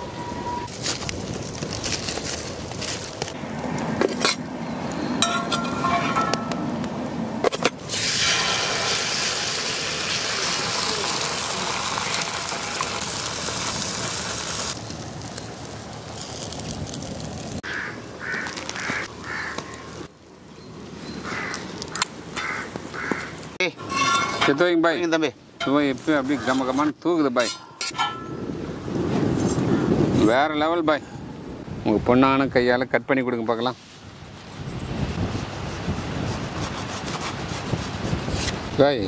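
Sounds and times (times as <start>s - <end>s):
loud steady sizzle: 7.8s - 20.2s.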